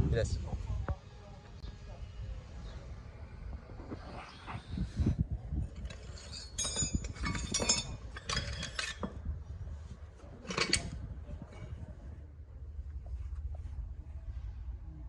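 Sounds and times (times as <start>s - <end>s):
metal pieces clinking: 6.2s - 9.1s.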